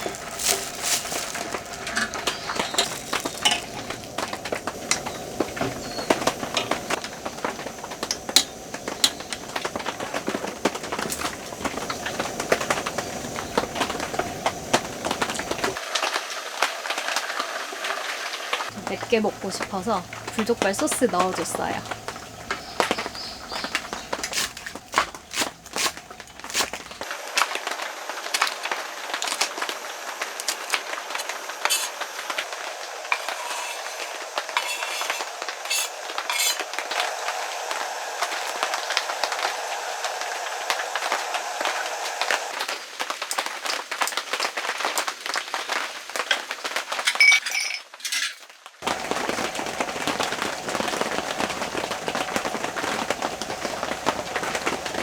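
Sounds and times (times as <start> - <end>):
frying hiss: 0.0 - 47.3, 48.7 - 55.0
utensil clinking against a pan: 0.4 - 4.0.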